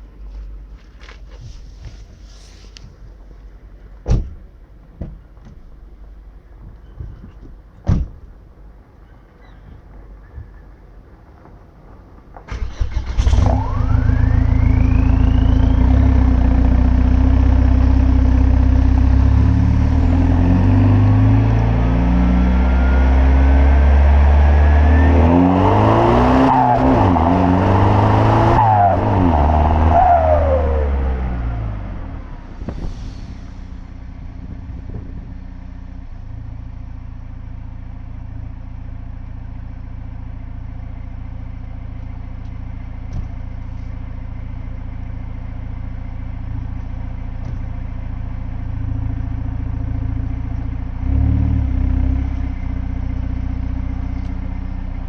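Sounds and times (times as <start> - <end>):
car engine starting: 11.1 - 55.0
car engine revving and idling: 12.5 - 55.0.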